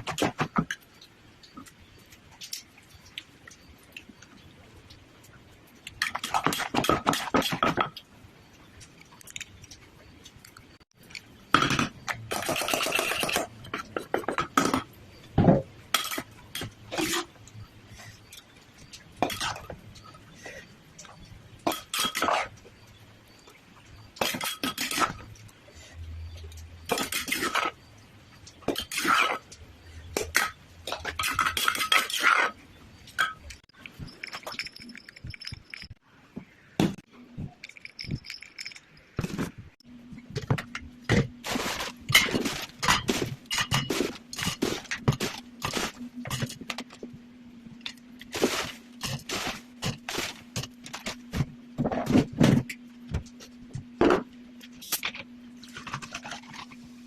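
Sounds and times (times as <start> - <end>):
faint steady hum: 0.0 - 57.0
utensils clinking on dishes: 11.5 - 17.6, 19.2 - 20.2, 21.0 - 22.6, 24.2 - 25.5, 26.4 - 27.8, 28.6 - 36.0, 37.6 - 39.6, 40.4 - 46.9, 48.2 - 54.2.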